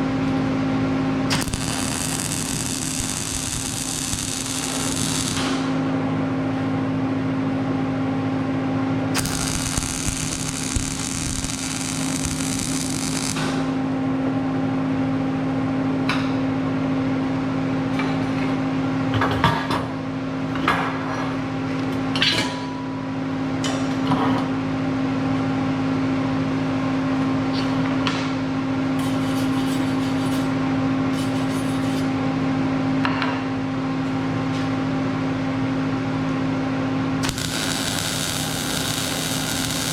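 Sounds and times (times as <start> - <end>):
electrical hum: 0.0 - 15.0, 35.6 - 39.9
hissing crackle: 1.3 - 5.6, 9.2 - 13.6, 37.2 - 39.9.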